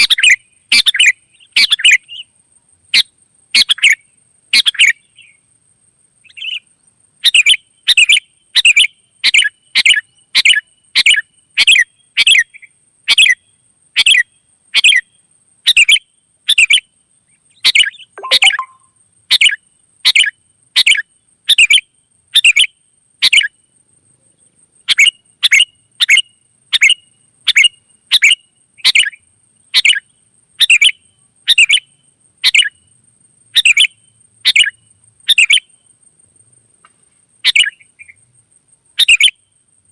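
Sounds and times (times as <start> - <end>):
bulbul giving short sharp calls: 18.2 - 18.9.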